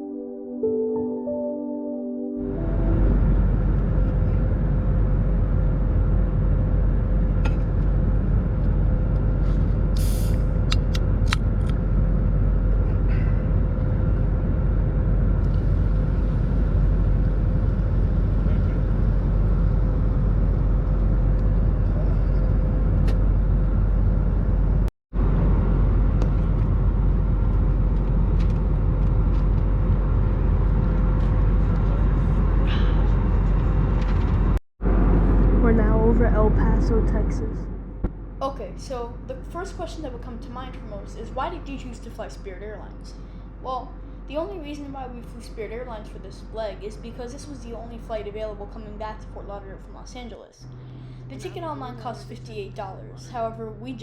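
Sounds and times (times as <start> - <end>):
airplane cabin roar: 2.4 - 54.0
constant tone: 34.8 - 54.0.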